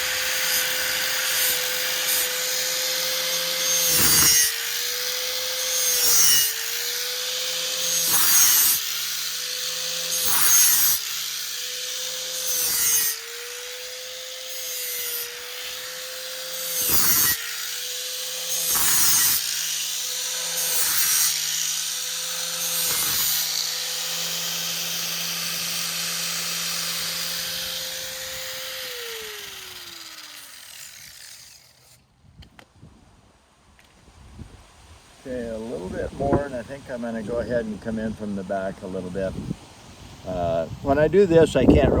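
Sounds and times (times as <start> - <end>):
electric sander humming: 0.0 - 31.9
steel grinding rasp: 0.0 - 32.0.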